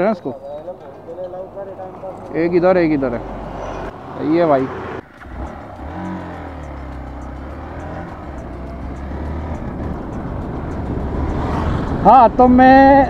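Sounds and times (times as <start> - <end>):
motorcycle engine running: 5.0 - 13.0.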